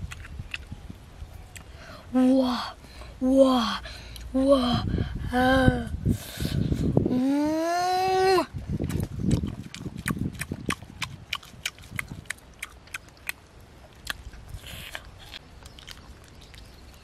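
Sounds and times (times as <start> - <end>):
person chewing with lip-smacking: 0.0 - 0.8, 8.7 - 17.0.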